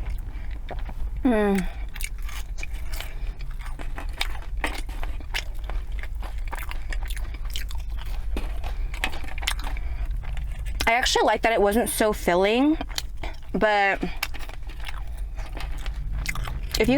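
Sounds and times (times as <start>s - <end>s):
person chewing food: 0.0s - 16.9s
steady low hum: 0.0s - 16.9s.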